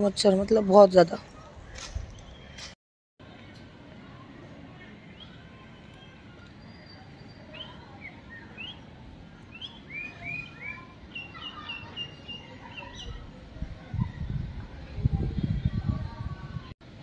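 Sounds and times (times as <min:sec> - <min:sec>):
birds chirping: 0:04.7 - 0:13.4.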